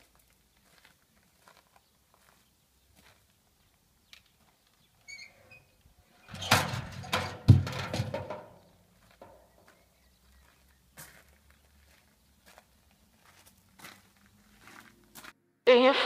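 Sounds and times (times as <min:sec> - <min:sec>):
faint footsteps on gravel: 0:00.0 - 0:05.1, 0:08.2 - 0:15.4.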